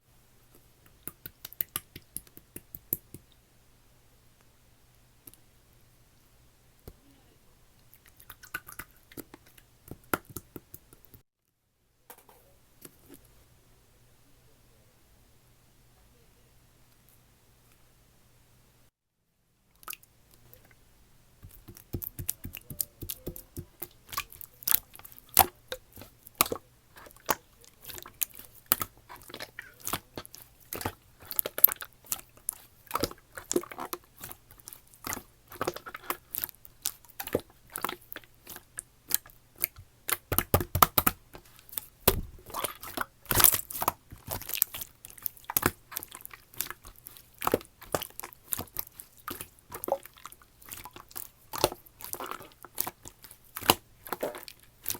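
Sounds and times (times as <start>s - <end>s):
slime squelches: 6.8s - 11.1s, 19.7s - 54.9s
sticky pops and clicks: 21.4s - 50.0s.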